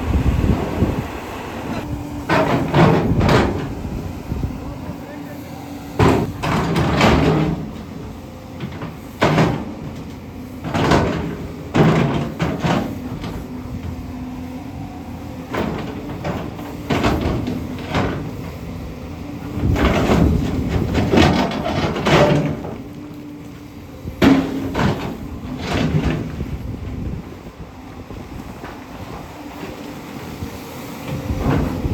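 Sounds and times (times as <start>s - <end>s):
engine humming: 0.0s - 31.9s
excavator bucket clanking on rock: 2.2s - 3.9s, 6.0s - 7.9s, 8.6s - 14.0s, 15.4s - 18.8s, 19.4s - 23.0s, 24.0s - 27.6s, 31.1s - 31.9s.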